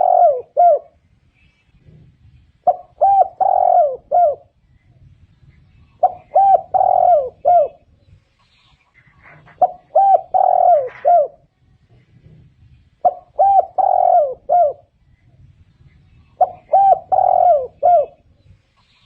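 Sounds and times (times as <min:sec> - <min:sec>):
dove cooing: 0:00.0 - 0:01.0, 0:01.7 - 0:04.6, 0:05.8 - 0:08.0, 0:08.7 - 0:15.0, 0:16.1 - 0:19.0.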